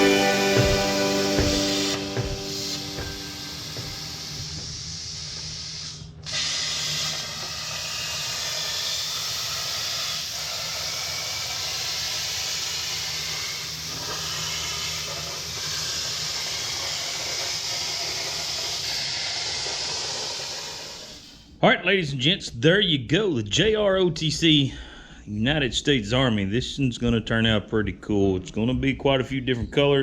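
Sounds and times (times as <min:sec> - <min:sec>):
plasma torch hissing: 0:00.0 - 0:21.5.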